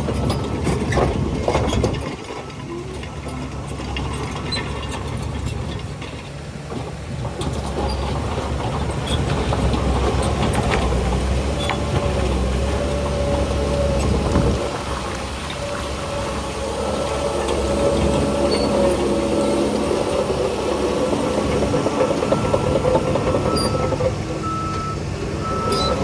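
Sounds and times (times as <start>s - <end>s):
bulldozer diesel engine: 0.0s - 26.0s
thin whine: 13.6s - 24.0s.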